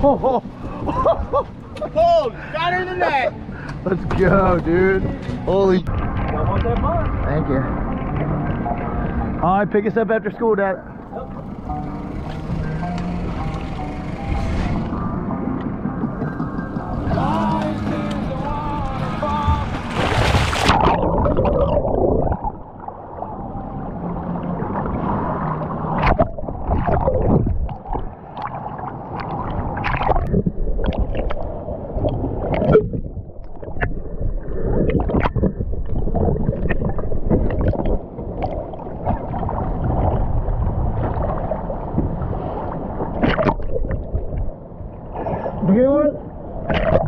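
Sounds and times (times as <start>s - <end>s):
underwater rush of water: 16.9s - 47.0s
gurgling bubbles: 19.5s - 45.6s, 46.6s - 47.0s.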